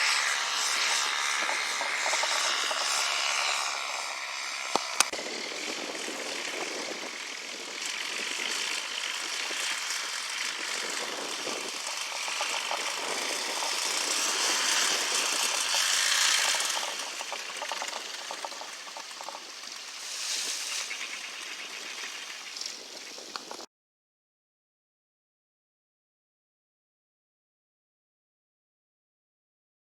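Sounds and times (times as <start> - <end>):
small engine rattling: 0.0 - 23.7.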